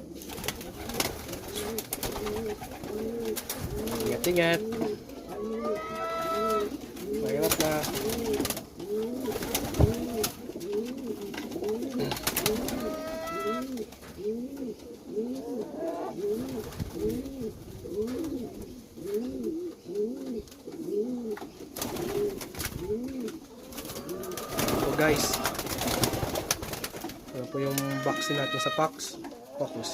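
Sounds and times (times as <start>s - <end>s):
pigeons cooing: 0.0s - 29.9s.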